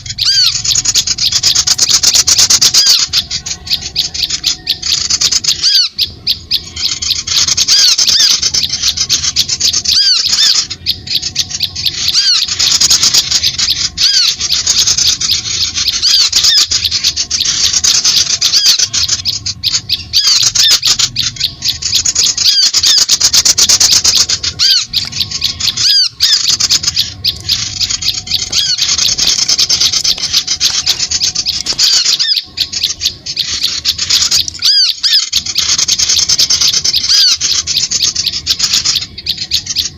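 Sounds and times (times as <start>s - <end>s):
small birds chirping and squawking: 0.0s - 39.9s.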